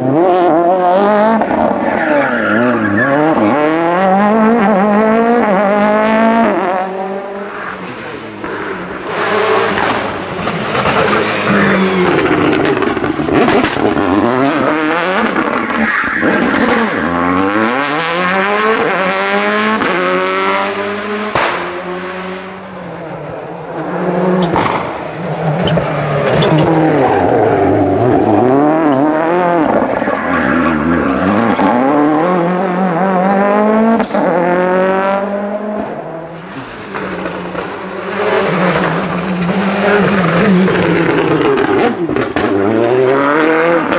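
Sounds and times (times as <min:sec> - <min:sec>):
rally car engines revving: 0:00.0 - 0:43.9
sharp bangs: 0:21.2 - 0:22.0.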